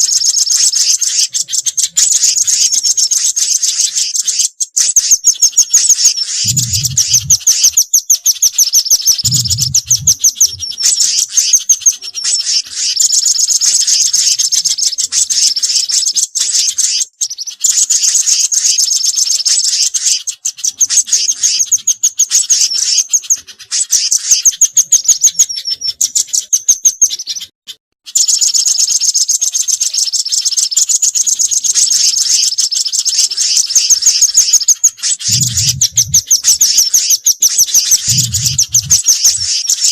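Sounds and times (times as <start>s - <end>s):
songbirds chirping trills: 0.0s - 27.5s, 28.1s - 39.9s
low thuds: 9.3s - 10.6s, 35.3s - 36.2s.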